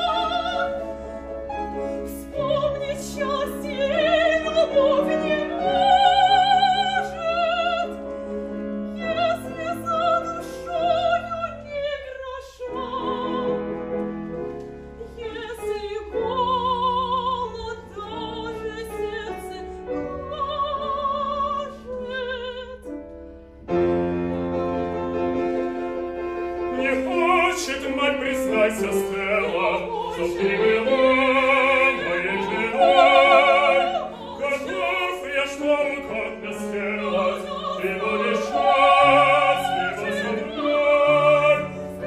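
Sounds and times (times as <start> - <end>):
operatic singing: 0.0 - 8.1, 26.6 - 42.0
piano accompaniment: 0.0 - 42.0.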